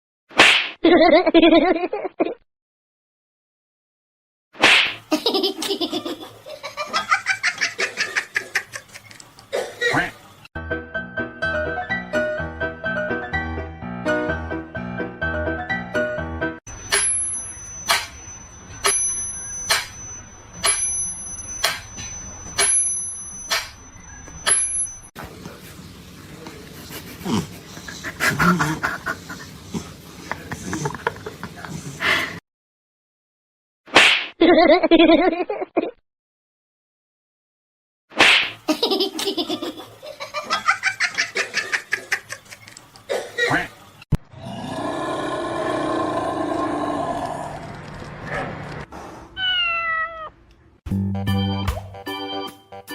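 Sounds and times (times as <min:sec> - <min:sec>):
person laughing: 0:00.8 - 0:02.4, 0:05.1 - 0:09.2, 0:26.9 - 0:29.6, 0:30.3 - 0:32.3
small bell ringing: 0:16.7 - 0:25.1.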